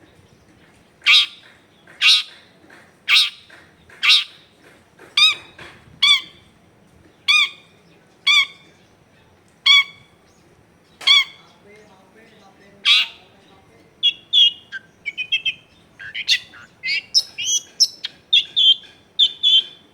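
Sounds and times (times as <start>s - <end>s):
shrike calling: 11.0s - 11.7s, 12.8s - 19.9s.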